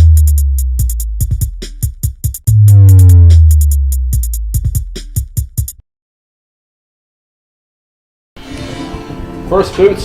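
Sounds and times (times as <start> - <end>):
electronic dance music: 2.5 - 3.8.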